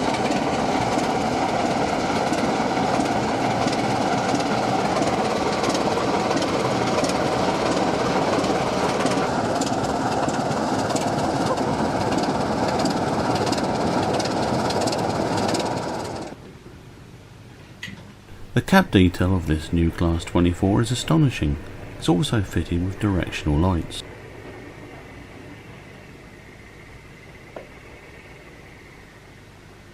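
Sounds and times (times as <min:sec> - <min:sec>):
model train rumbling: 0:00.0 - 0:16.4, 0:18.3 - 0:29.9
wheels clicking over rail joints: 0:00.0 - 0:16.4.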